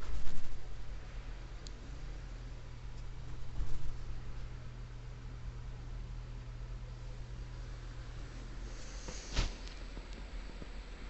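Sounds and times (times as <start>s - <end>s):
steady low hum: 0.0s - 11.0s
faint even hiss: 7.5s - 10.1s.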